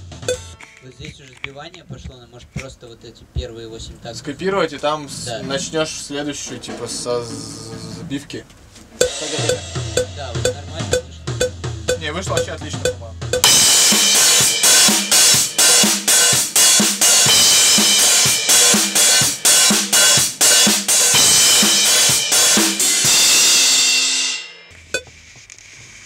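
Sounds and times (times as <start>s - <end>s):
drum kit playing a beat: 0.0s - 0.8s, 8.9s - 25.3s
cymbal ringing: 9.0s - 10.6s, 13.4s - 24.8s.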